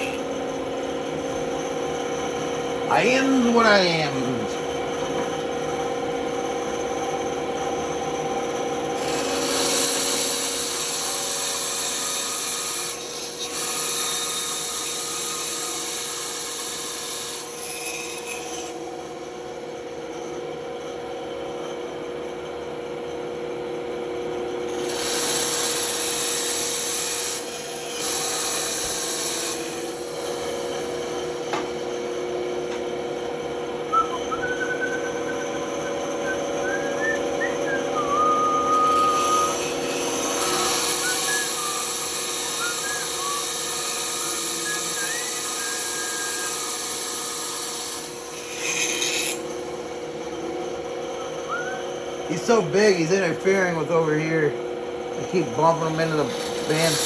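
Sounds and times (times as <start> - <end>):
band saw humming: 0.0 - 16.2, 24.7 - 57.0
saw blade cutting wood: 9.0 - 18.8, 24.8 - 32.0, 33.9 - 49.6, 55.3 - 57.0.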